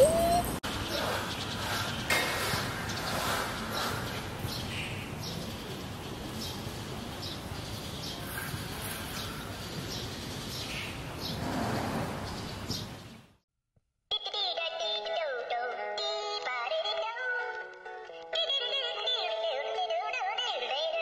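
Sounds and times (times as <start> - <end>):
birds chirping: 0.0 - 2.2.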